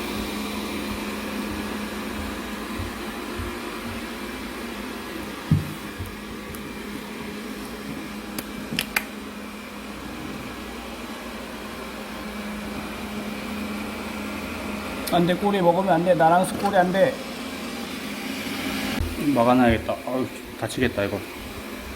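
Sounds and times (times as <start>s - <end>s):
robot vacuum cleaner humming: 0.0s - 21.9s
low thump: 5.5s - 5.8s.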